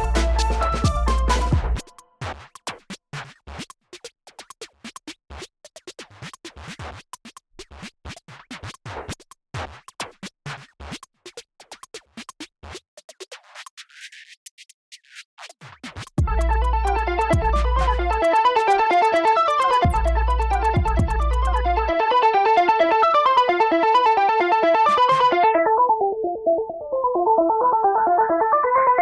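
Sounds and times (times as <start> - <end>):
bass beat: 0.0 - 1.8, 16.2 - 19.2, 19.8 - 21.9
electronic music with choppy stabs: 0.0 - 2.5, 15.4 - 25.5
scratch effects: 0.0 - 21.9.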